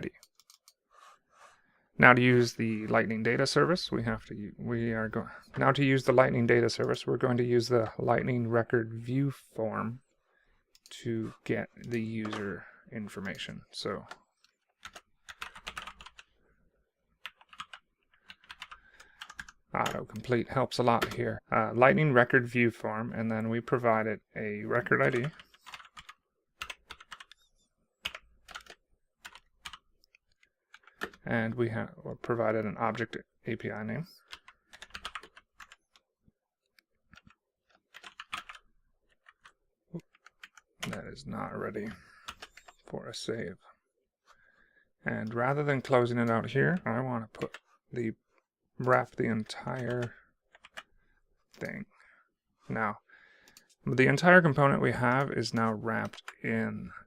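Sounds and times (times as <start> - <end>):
computer keyboard typing: 0.1 - 0.8, 11.8 - 12.6, 14.0 - 16.3, 17.2 - 21.2, 24.8 - 31.2, 34.2 - 36.0, 37.1 - 41.0, 41.8 - 42.9, 48.8 - 50.9, 54.9 - 56.4.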